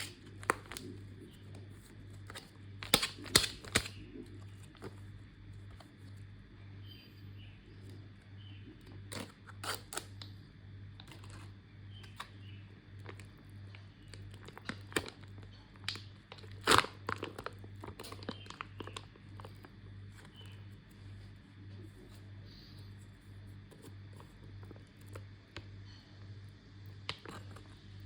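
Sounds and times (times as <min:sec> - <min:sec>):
plastic packaging crinkling and tearing: 0:00.0 - 0:06.2, 0:08.9 - 0:10.2, 0:13.0 - 0:20.6, 0:27.0 - 0:27.8
steady low hum: 0:00.0 - 0:28.0.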